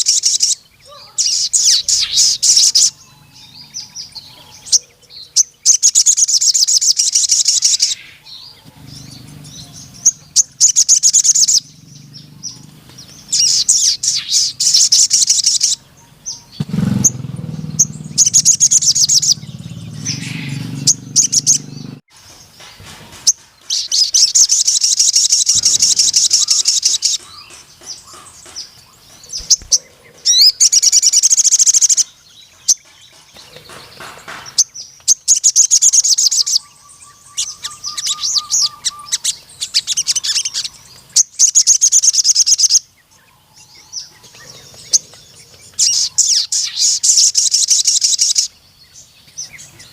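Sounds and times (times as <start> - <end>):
sunbird singing high trills: 0.0 - 22.6, 23.2 - 49.9.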